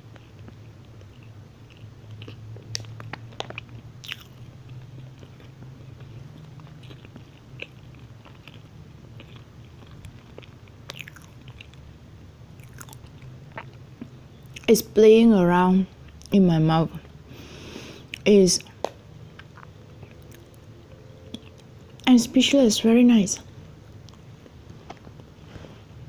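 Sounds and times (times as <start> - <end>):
close-miked chewing: 0.0 - 11.9, 12.6 - 14.8, 18.0 - 22.1.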